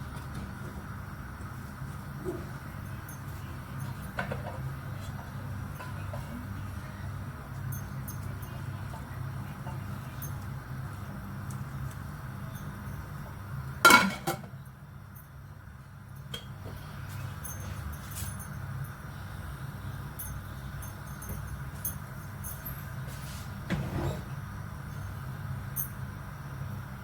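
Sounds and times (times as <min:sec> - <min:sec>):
steady low hum: 0:00.0 - 0:27.0
cookware clinking: 0:13.9 - 0:14.5.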